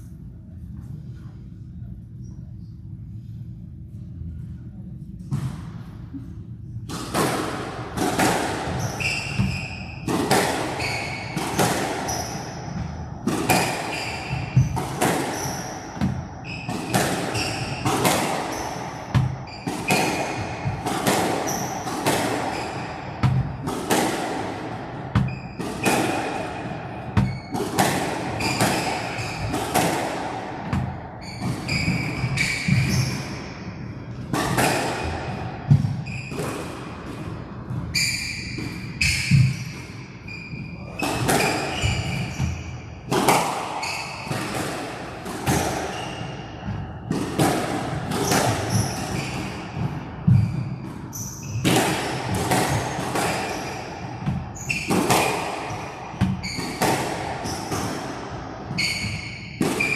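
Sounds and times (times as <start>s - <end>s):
squash ball thuds: 6.9s - 39.8s, 40.9s - 59.9s
shoe squeaks: 8.8s - 12.8s, 13.5s - 20.8s, 21.4s - 21.9s, 22.5s - 23.6s, 25.2s - 29.6s, 31.2s - 33.8s, 35.9s - 36.4s, 37.9s - 43.0s, 43.8s - 44.6s, 45.9s - 46.6s, 48.2s - 57.8s, 58.7s - 59.9s.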